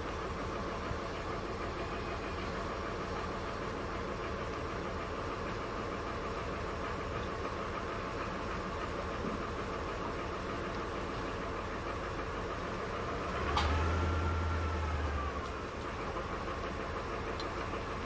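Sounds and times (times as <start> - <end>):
low hum with rising whine: 0.0 - 18.0
motor drone: 6.3 - 18.0.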